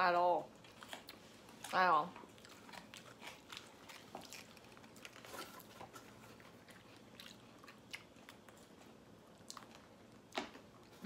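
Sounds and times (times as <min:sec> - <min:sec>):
faint chewing with crunches: 0:00.4 - 0:11.0.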